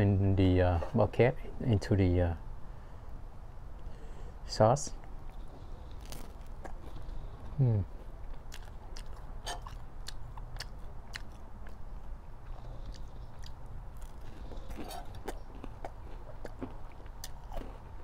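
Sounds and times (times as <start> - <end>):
biting and chewing bread: 5.0 - 18.0.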